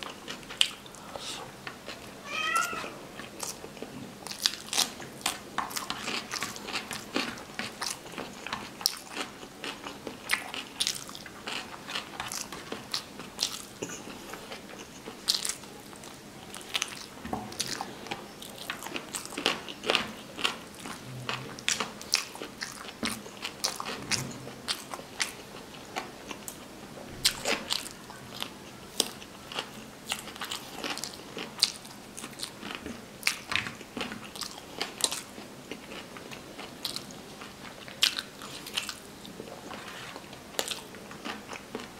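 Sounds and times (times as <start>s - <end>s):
wet chewing with smacks: 3.2s - 26.6s.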